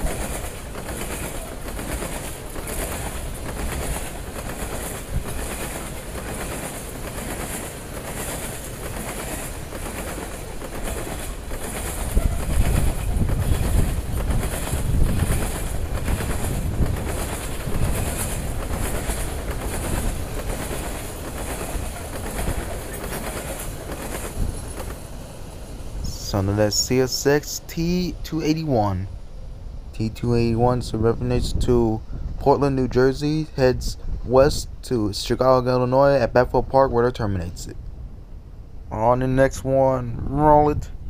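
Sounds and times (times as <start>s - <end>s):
train wheels clacking on rails: 0.0s - 25.2s.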